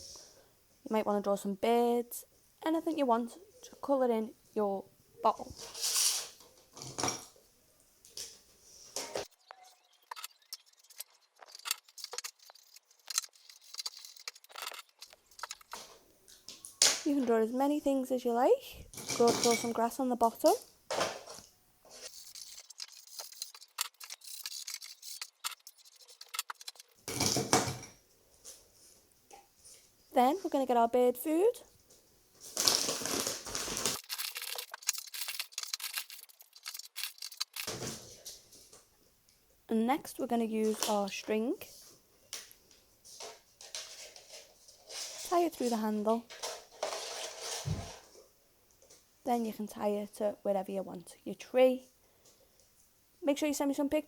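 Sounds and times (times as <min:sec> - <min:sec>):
seeds ticking on plastic: 0:09.3 - 0:16.8
felt-tip pen scratching on plastic: 0:22.0 - 0:27.0
bird seed rustling: 0:32.4 - 0:37.7.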